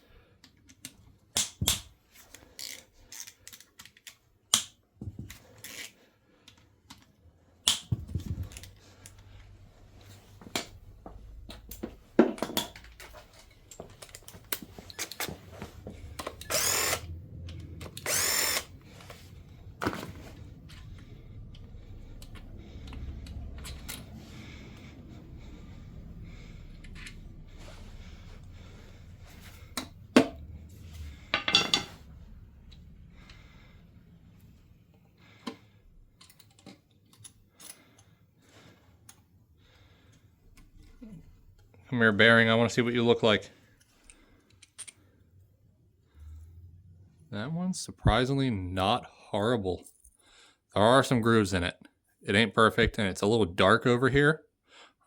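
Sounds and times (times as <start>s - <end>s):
cordless power tool spinning bolts: 16.2s - 17.1s, 17.7s - 18.8s
tools clanking on metal: 31.2s - 32.1s.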